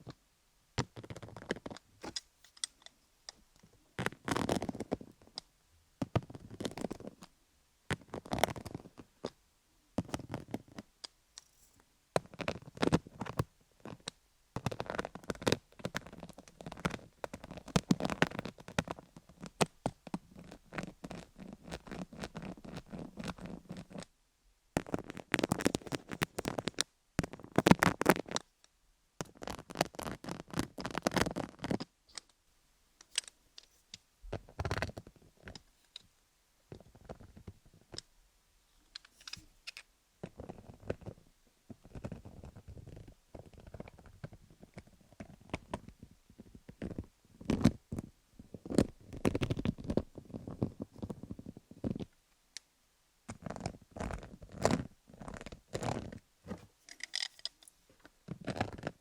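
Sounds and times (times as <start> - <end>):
needle roller crackling over stones: 29.2 - 31.9.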